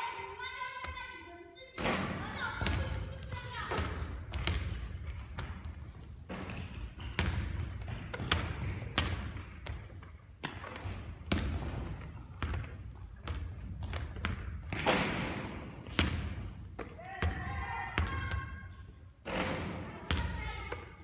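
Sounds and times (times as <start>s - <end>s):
basketball bouncing on a court: 1.8s - 21.0s.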